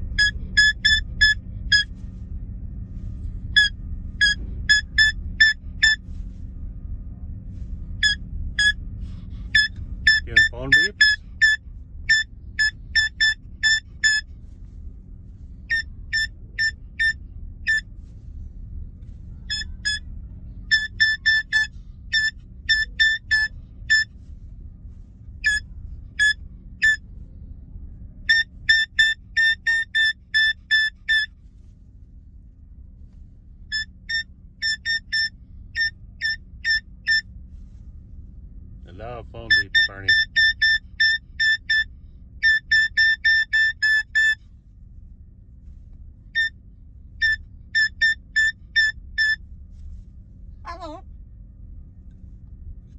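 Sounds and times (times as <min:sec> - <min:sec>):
steady low hum: 0:00.0 - 0:52.9
cockatoo mimicking phone beeps: 0:00.2 - 0:01.9, 0:09.6 - 0:14.2, 0:19.5 - 0:20.0, 0:20.7 - 0:24.1, 0:28.3 - 0:31.3, 0:33.8 - 0:37.2, 0:39.5 - 0:41.8, 0:42.4 - 0:44.4.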